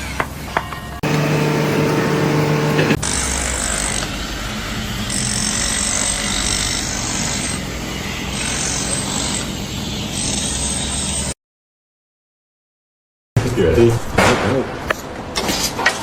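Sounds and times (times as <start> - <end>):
machinery humming: 1.0 - 3.0.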